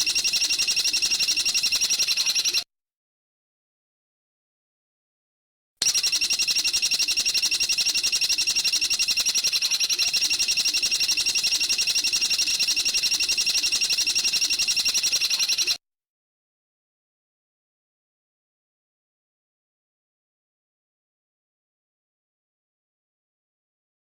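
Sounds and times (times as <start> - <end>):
songbird high-pitched trill: 5.9 - 15.8.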